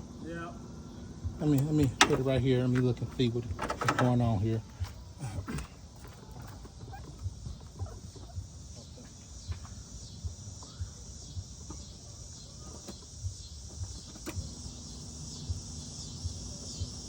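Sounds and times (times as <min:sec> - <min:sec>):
high insect chirring: 0:00.0 - 0:17.0
steady low hum: 0:00.0 - 0:17.0
soft low thumps: 0:01.1 - 0:14.6.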